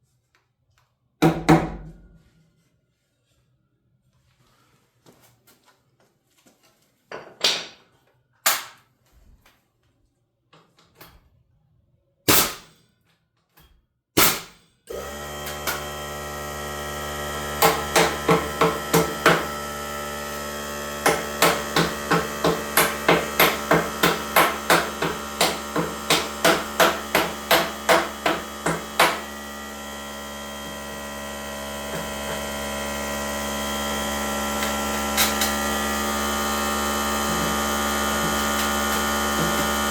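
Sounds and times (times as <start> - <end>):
sharp hammer strikes: 12.3 - 12.8, 14.2 - 14.6, 21.0 - 29.3
steady machine hum: 16.1 - 39.9.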